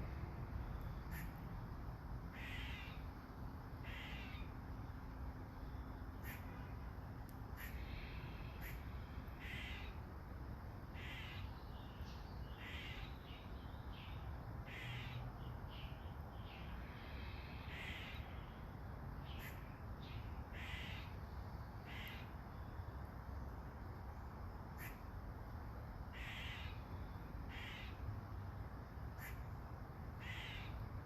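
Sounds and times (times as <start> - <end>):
bird calling: 1.1 - 1.4, 6.2 - 6.8, 7.6 - 10.0, 11.0 - 13.2, 19.3 - 21.2, 21.9 - 22.3, 27.5 - 28.0, 30.2 - 30.8.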